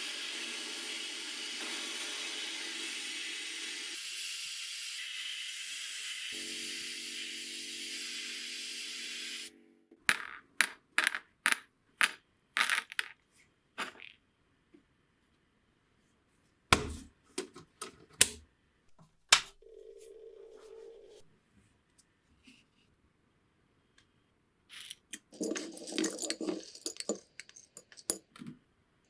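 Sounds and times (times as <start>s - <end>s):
metal parts clinking on hard surface: 10.1s - 13.1s, 24.8s - 28.2s.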